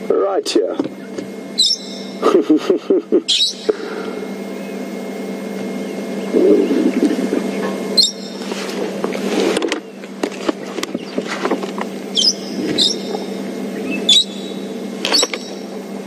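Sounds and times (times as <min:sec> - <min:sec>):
parrots shrieking: 0:01.6 - 0:02.2, 0:03.3 - 0:03.9, 0:08.0 - 0:08.4, 0:12.1 - 0:15.6.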